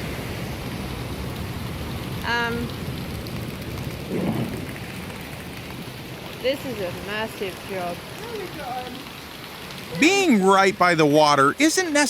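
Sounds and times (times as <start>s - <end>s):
heavy rain: 0.0s - 12.0s
low rumble: 2.7s - 6.2s
person shouting: 10.0s - 10.6s.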